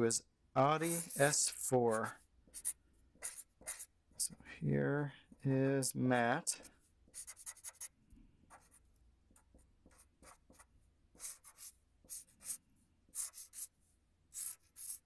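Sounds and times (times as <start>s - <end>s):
pen scratching on paper: 0.8s - 3.9s, 7.1s - 7.9s, 8.5s - 8.8s, 9.4s - 13.7s, 14.3s - 15.0s.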